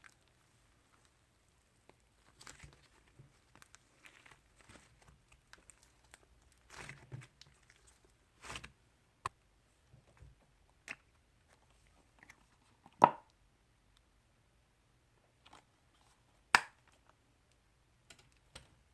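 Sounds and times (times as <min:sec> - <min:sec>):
slime wet squishes: 0:00.0 - 0:09.4.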